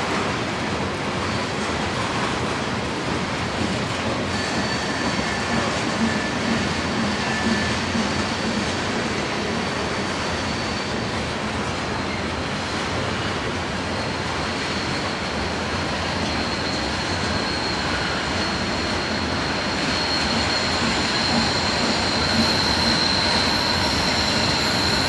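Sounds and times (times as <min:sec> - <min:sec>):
steel wheels rumbling on rail: 0:00.0 - 0:25.0
high-pitched wheel squeals: 0:04.1 - 0:12.4, 0:13.2 - 0:25.0.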